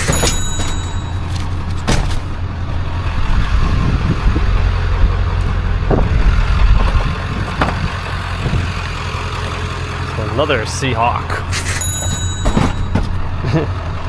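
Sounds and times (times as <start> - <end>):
sharp knocks: 0.0 - 2.3, 5.9 - 8.9, 12.0 - 13.2
motor vehicle rumbling: 0.0 - 14.0.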